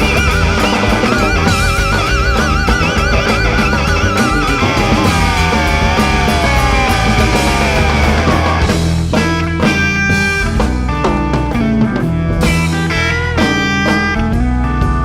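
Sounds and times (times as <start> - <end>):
electric guitar sliding note: 0.0 - 8.8
blues-rock band playing live: 0.0 - 15.0.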